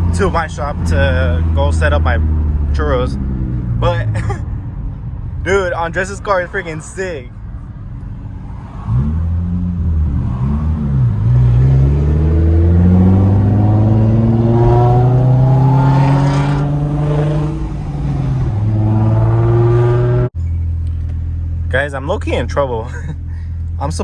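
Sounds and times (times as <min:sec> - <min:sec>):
car engine accelerating hard: 0:07.9 - 0:20.3.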